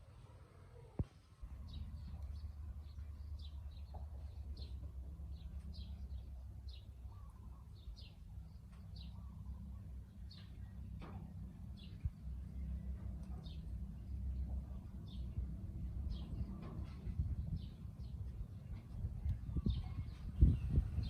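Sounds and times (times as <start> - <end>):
small birds chirping: 0.7 - 21.0
steady low rumble: 1.0 - 21.0.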